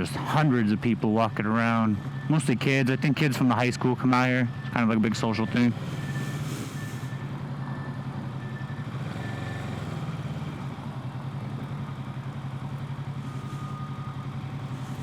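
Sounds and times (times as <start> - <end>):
motorcycle engine running at low revs: 3.0 - 15.0.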